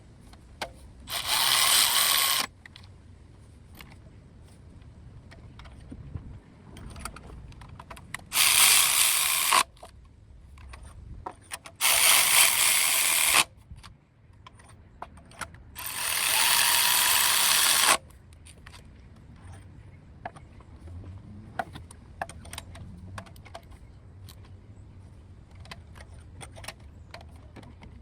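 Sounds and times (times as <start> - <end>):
power ratchet running: 1.1 - 2.5, 8.3 - 9.6, 11.8 - 13.5, 15.8 - 18.0
tools clicking and tapping: 21.6 - 24.5.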